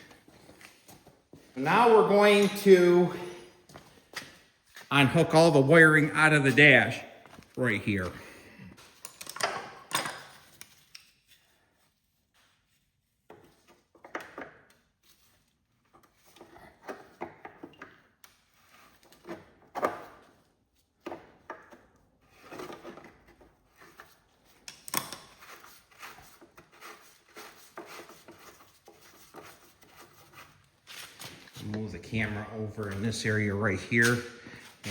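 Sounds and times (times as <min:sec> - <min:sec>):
wires and plastic parts clicking: 0:08.8 - 0:11.4, 0:22.5 - 0:26.5.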